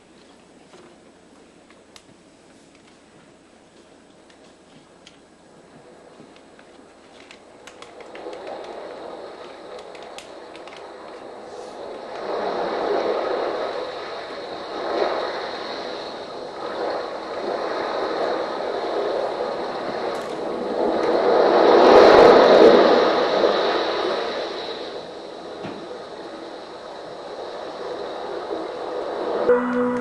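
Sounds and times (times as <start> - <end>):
scattered clicks: 6.3 - 8.8, 9.4 - 10.9
rushing noise: 28.6 - 30.0.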